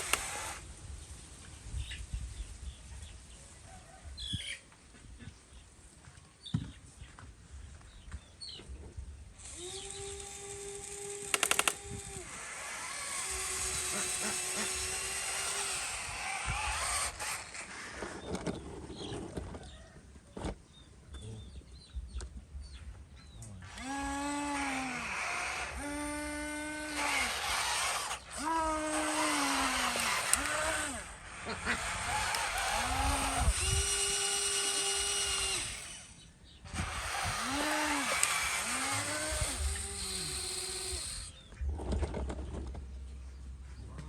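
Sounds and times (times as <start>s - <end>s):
electric motors whining: 0.0s - 0.7s, 9.4s - 19.3s, 23.6s - 41.5s
clicks: 11.2s - 12.0s.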